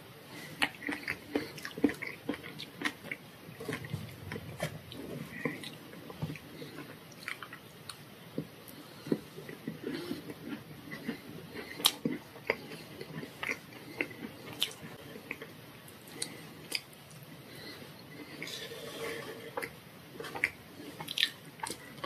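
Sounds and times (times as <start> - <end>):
chewing and wet mouth sounds: 0.3 - 18.5, 19.6 - 22.0.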